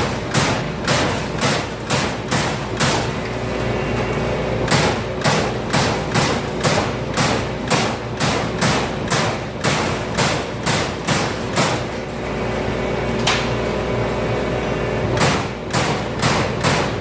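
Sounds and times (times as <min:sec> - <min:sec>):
punch press hitting sheet metal: 0:00.0 - 0:03.3, 0:04.6 - 0:12.2, 0:15.2 - 0:17.0.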